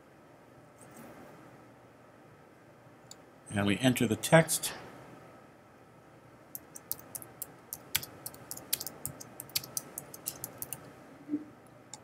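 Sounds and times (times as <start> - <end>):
computer keyboard typing: 6.6 - 10.9.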